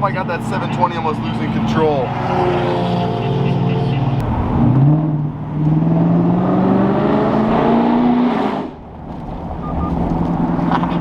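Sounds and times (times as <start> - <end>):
car engine accelerating: 4.1 - 11.0.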